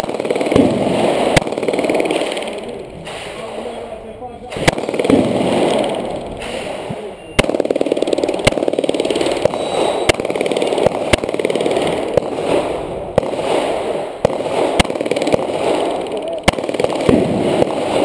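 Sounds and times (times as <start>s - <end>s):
pistol shots: 0.0s - 3.9s, 4.5s - 18.0s.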